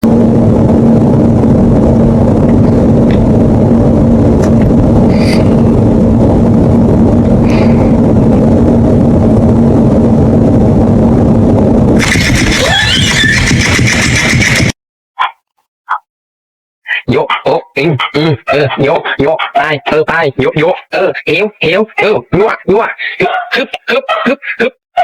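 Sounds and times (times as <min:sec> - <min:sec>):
mechanical rumble with hum: 0:00.0 - 0:14.7.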